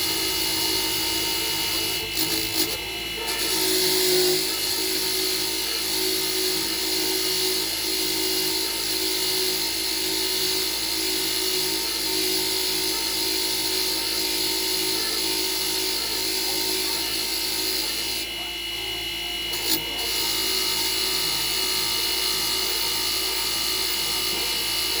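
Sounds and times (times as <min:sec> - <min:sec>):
power tool whining: 0:00.0 - 0:25.0.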